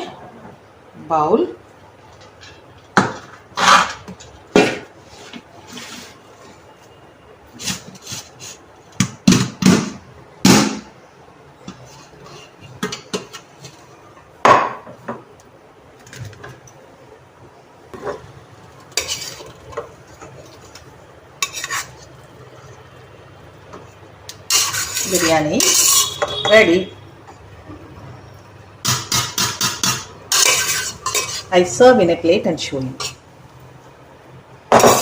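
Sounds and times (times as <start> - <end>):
spoon scraping and clinking pot: 18.9 - 22.8, 23.8 - 26.6, 28.9 - 31.5, 34.7 - 35.0.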